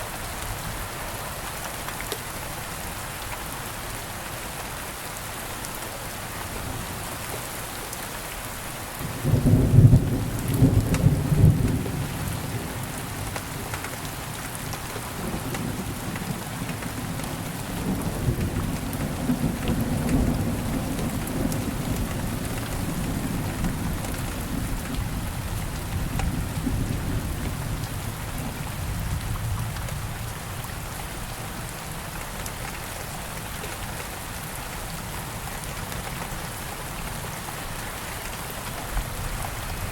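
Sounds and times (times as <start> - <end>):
steady rain falling: 0.0 - 39.9
low rumble of thunder: 9.0 - 13.3, 15.1 - 31.1.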